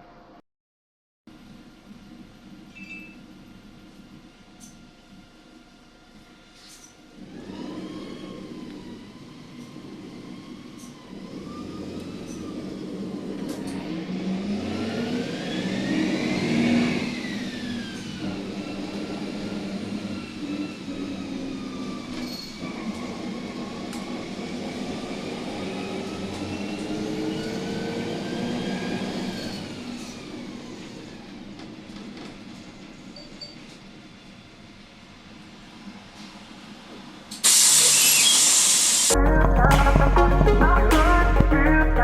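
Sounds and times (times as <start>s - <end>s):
vehicle whine rising in pitch: 7.2s - 31.3s.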